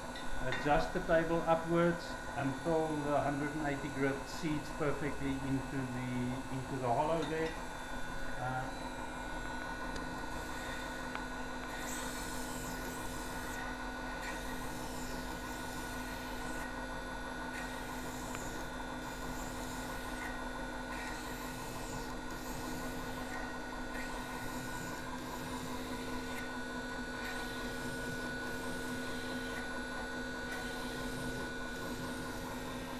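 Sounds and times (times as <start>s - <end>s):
belt grinder running: 9.4s - 32.9s
blade grinding against belt: 11.7s - 16.7s, 17.5s - 26.5s, 30.5s - 32.9s.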